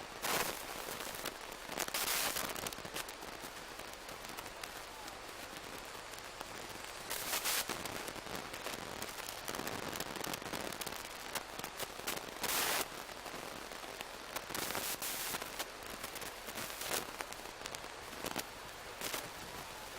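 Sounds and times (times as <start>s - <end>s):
steam locomotive crackling hiss: 0.2s - 13.8s, 14.4s - 19.9s
bursts of steam hiss: 6.9s - 8.7s, 11.7s - 13.0s, 14.5s - 17.2s.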